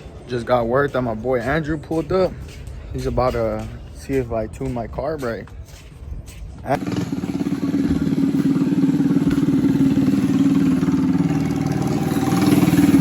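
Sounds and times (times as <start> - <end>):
minibike engine fast idle: 6.8 - 13.0.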